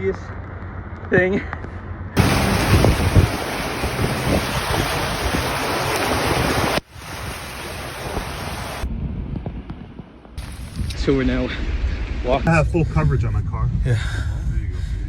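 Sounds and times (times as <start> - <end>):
heavy rain: 2.2 - 8.9, 10.4 - 12.0
wind buffeting microphone: 2.2 - 15.0.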